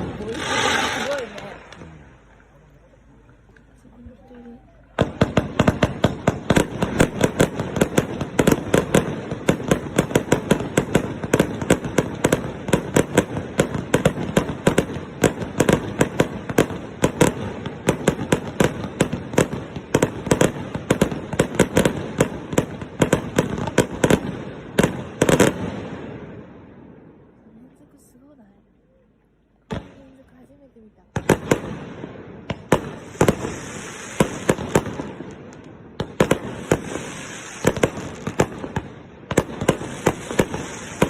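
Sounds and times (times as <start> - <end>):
firework crackle: 0.0 - 2.5, 4.9 - 26.4, 31.2 - 41.0
firework shells bursting: 31.2 - 41.0.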